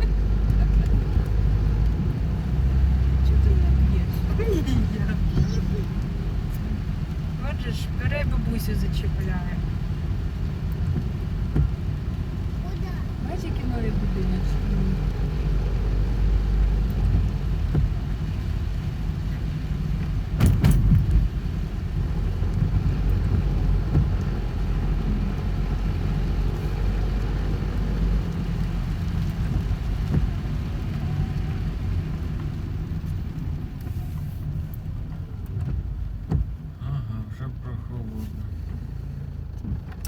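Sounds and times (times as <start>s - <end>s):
car road noise rumble: 0.0s - 40.0s.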